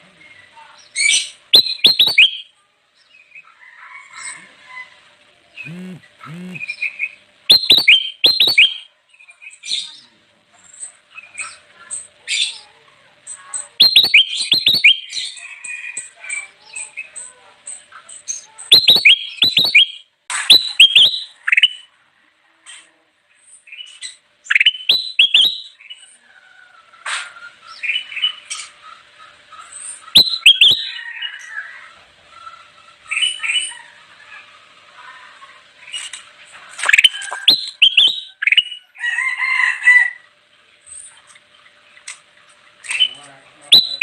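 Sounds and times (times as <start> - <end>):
soft bird twittering: 0.3 - 3.4, 5.6 - 10.1, 13.3 - 16.0, 16.6 - 21.9, 23.7 - 26.2, 29.6 - 31.1, 36.8 - 38.9, 42.8 - 44.0
bird chirping sharply: 1.6 - 2.5, 5.6 - 8.9, 13.8 - 15.2, 18.7 - 21.8, 30.2 - 30.9, 36.8 - 38.8, 42.9 - 44.0.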